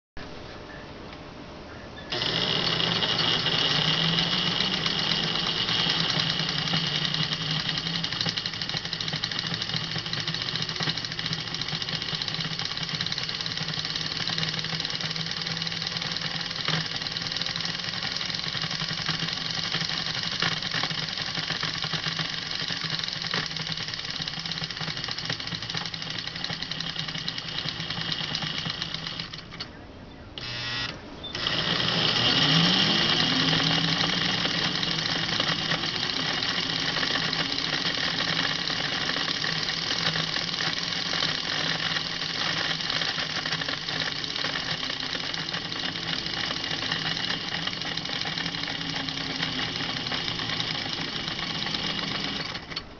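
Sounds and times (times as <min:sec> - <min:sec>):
model train motor whirring: 0:02.1 - 0:29.7, 0:30.4 - 0:52.9.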